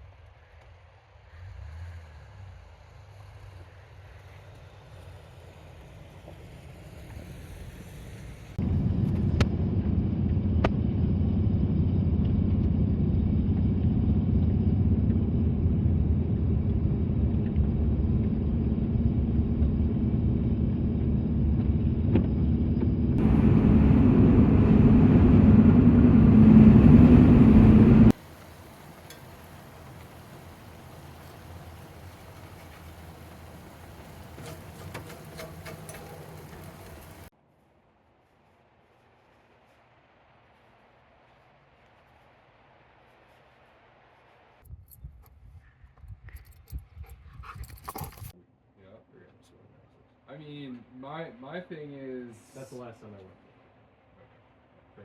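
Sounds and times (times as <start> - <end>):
vehicle road and engine rumble: 0.1 - 37.4.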